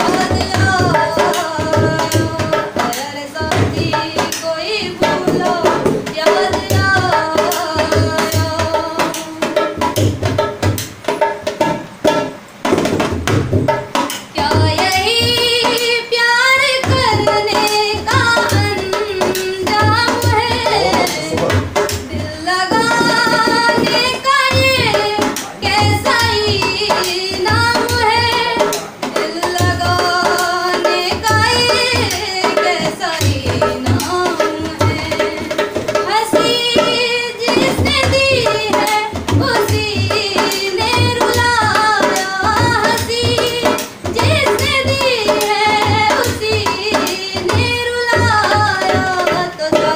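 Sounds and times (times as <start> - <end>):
woman singing: 0.0 - 10.6, 14.0 - 49.9
hand drum strokes: 0.0 - 49.9.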